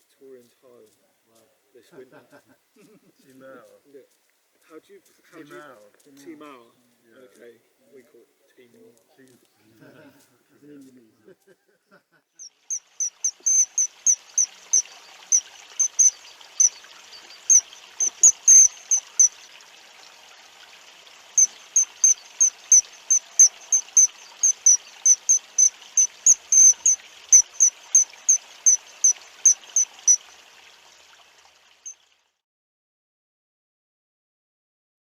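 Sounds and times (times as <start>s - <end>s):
short high chirps: 12.4s - 19.5s, 21.4s - 30.2s.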